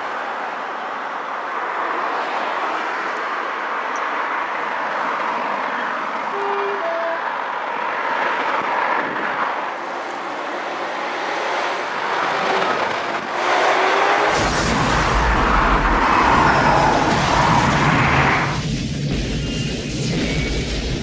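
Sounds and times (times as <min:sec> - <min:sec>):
train wheels rushing on rail: 0:06.8 - 0:21.0.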